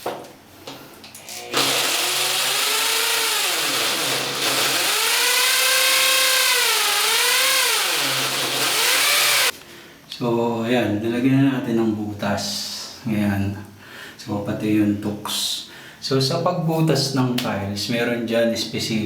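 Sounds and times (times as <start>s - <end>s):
power drill boring into tile: 1.4s - 9.5s.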